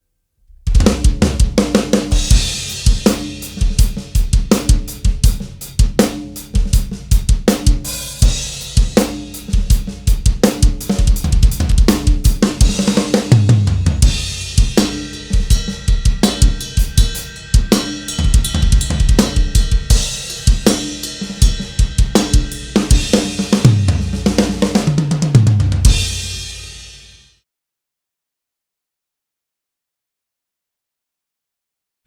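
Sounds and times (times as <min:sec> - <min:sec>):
bass guitar: 0:00.5 - 0:03.1, 0:12.7 - 0:14.8, 0:21.9 - 0:26.3
drum kit rock groove: 0:00.6 - 0:27.3
cymbal ringing final hit: 0:14.2 - 0:23.8.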